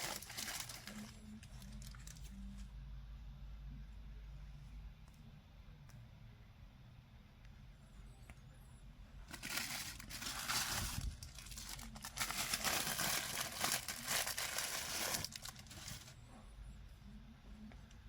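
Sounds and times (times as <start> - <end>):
packaging wrap crinkling: 0.0 - 2.3, 9.3 - 16.2.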